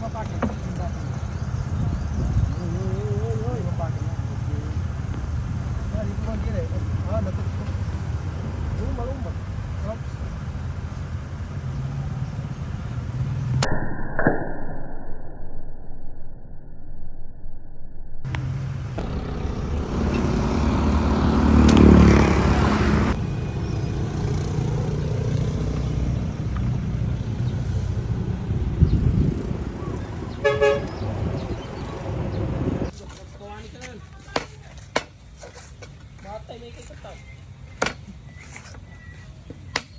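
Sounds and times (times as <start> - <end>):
vehicle engine running: 0.0 - 13.7, 18.3 - 32.9.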